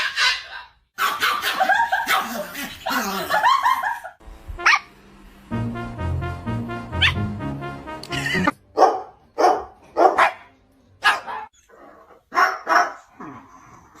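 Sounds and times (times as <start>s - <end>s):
dog barking: 0.0s - 2.5s, 8.8s - 11.5s, 12.3s - 13.1s
music: 4.2s - 11.1s.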